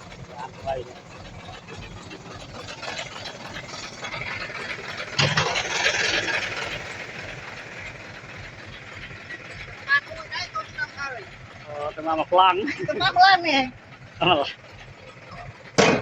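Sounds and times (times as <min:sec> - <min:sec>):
bulldozer diesel engine running: 0:00.0 - 0:16.0
low thump: 0:15.8 - 0:16.0.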